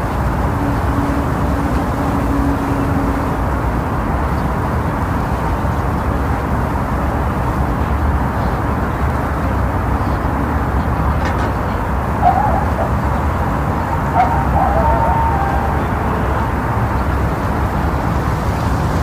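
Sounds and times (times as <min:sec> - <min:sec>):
wavering animal calls: 0:12.0 - 0:17.4.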